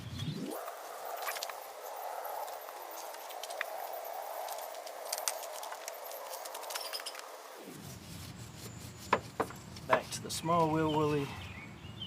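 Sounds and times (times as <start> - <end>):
wet brush scrubbing: 7.6 - 11.2
brush knocking on engine parts: 8.6 - 11.0.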